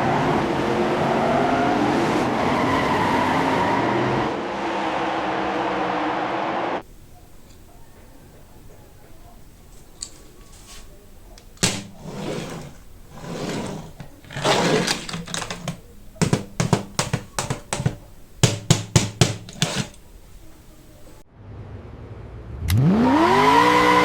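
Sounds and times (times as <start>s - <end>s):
card and plastic packaging rustling: 9.6s - 18.5s.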